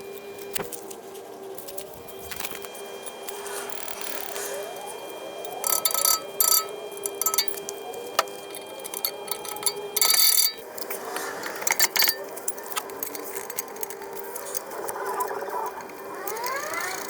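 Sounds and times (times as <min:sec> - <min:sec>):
metal tools clinking and rattling: 0:05.6 - 0:15.2.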